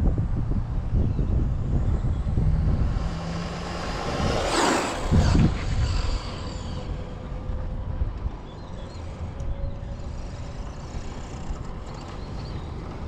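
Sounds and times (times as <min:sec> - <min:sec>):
wind rumble on microphone: 0:00.0 - 0:13.0
electric toy car motor whine: 0:04.4 - 0:07.4, 0:08.9 - 0:12.3.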